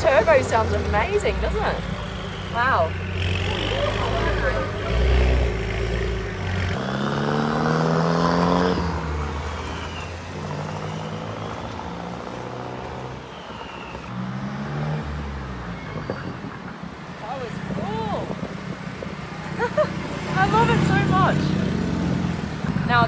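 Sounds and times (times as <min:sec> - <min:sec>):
car engine accelerating: 0:00.0 - 0:16.1.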